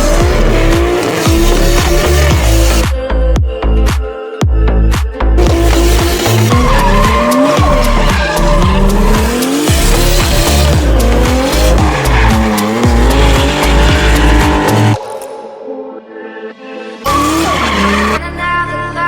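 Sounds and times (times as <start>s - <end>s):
car engine revving: 0.0s - 2.9s, 5.4s - 15.0s, 17.1s - 18.2s
hip-hop music with heavy bass: 0.0s - 19.0s
tyres squealing: 5.6s - 15.0s, 17.1s - 18.2s.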